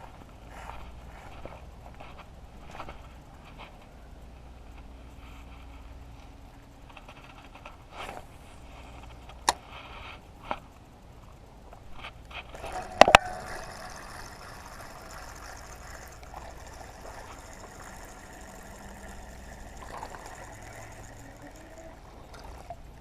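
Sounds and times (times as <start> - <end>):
water trickling: 12.5 - 23.0.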